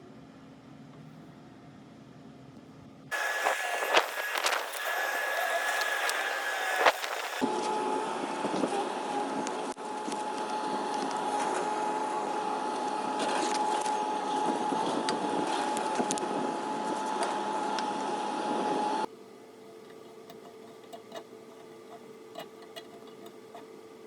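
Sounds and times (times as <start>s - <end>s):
electric motor whining: 3.1s - 7.4s
scratchy clicks: 3.1s - 7.4s.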